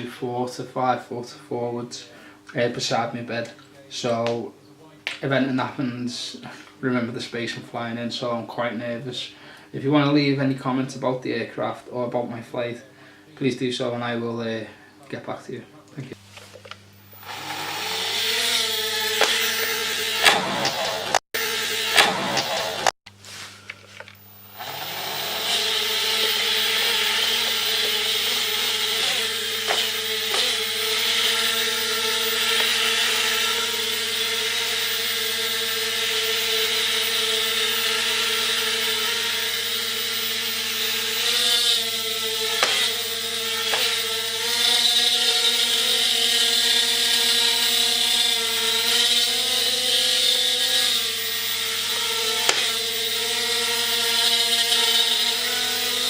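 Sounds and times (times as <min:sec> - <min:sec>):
toy drone propellers whining: 0:17.1 - 0:23.0, 0:23.8 - 0:56.0.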